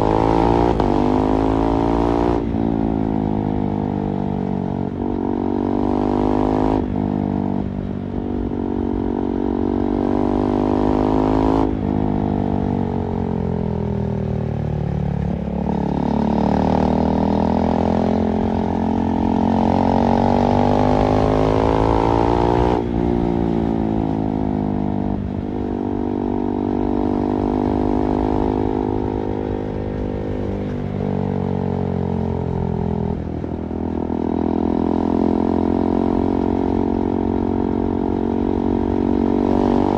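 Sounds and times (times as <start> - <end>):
motorcycle engine revving: 15.2 - 39.9.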